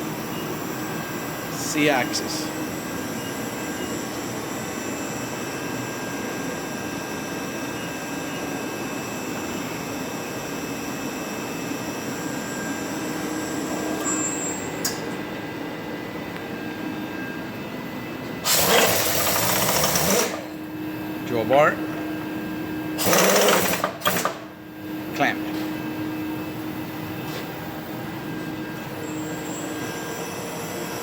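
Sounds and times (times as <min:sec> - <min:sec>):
milling machine hum: 0:00.0 - 0:31.0
loud rattling burst: 0:23.0 - 0:24.2.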